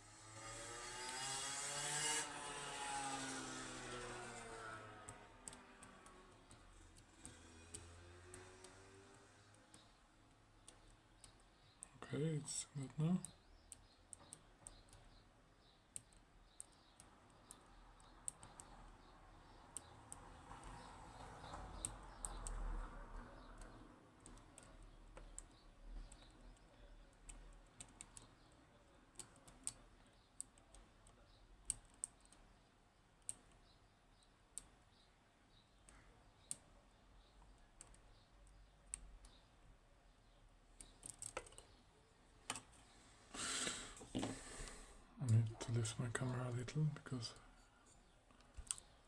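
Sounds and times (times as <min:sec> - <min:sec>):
soft handling noise: 0:41.3 - 0:46.7.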